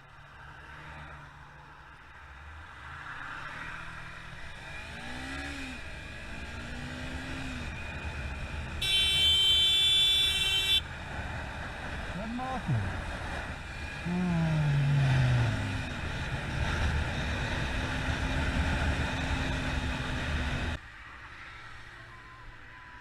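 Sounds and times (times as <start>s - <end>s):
road traffic engines: 0.0s - 23.0s
vehicle horn blast: 8.8s - 10.8s.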